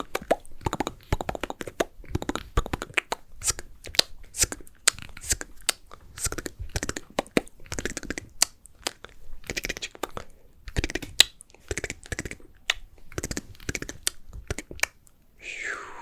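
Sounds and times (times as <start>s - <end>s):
wet mouth clicks and lip smacks: 0.0s - 15.2s
breathy hiss: 15.4s - 16.0s.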